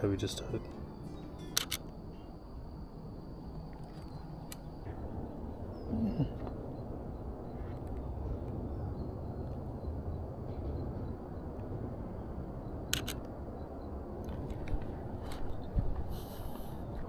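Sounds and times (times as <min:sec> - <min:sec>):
steady low rumble: 0:00.0 - 0:17.0
camera shutter double click: 0:01.5 - 0:01.9, 0:12.9 - 0:13.2.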